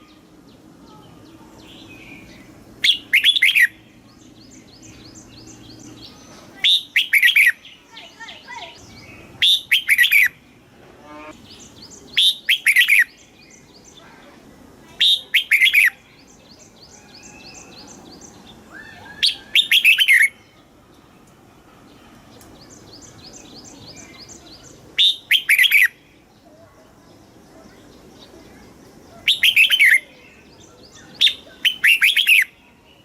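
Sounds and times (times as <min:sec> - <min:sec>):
bird singing short phrases: 0:00.0 - 0:10.4, 0:11.0 - 0:14.3, 0:14.9 - 0:20.6, 0:22.6 - 0:26.5, 0:27.6 - 0:33.0
faint high bird notes: 0:08.8 - 0:12.7.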